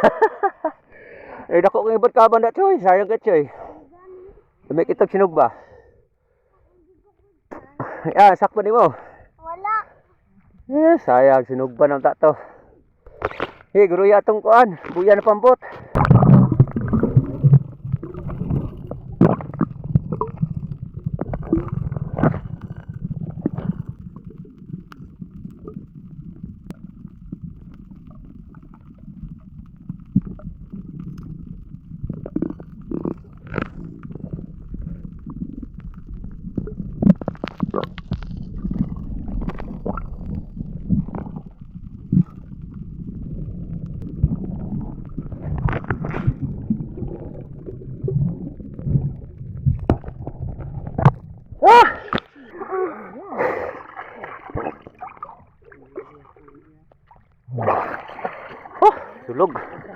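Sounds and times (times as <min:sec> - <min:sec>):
underwater rumble of moving water: 0:14.8 - 0:59.9.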